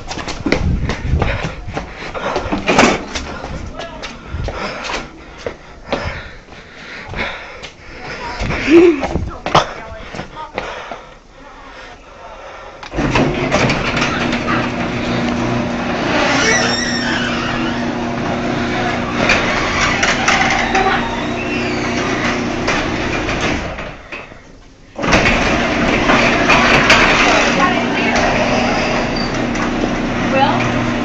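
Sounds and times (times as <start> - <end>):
loud abrupt sound: 13.0 - 22.6
garage door opener motor hum: 13.0 - 24.1, 25.0 - 31.0.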